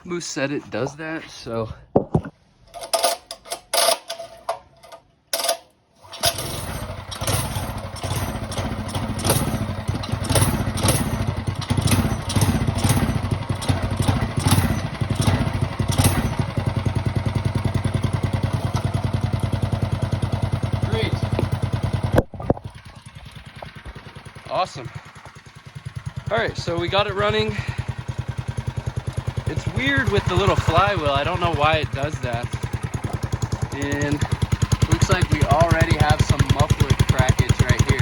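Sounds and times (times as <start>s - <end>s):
recoil starter pulls: 2.6s - 38.0s
small engine running: 5.4s - 38.0s.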